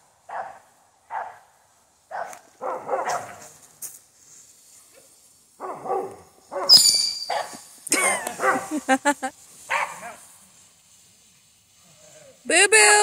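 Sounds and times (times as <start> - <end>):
dogs barking: 0.3 - 1.5, 2.1 - 3.4, 5.6 - 8.8, 9.7 - 10.3.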